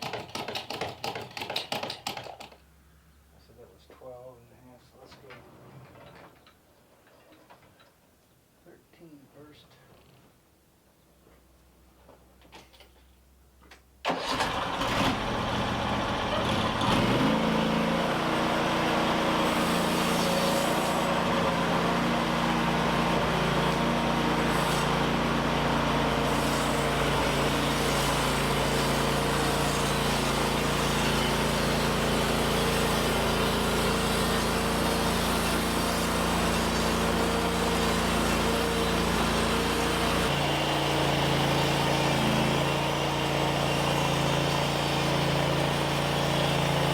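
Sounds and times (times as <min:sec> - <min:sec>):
engine running: 0:14.1 - 0:46.9.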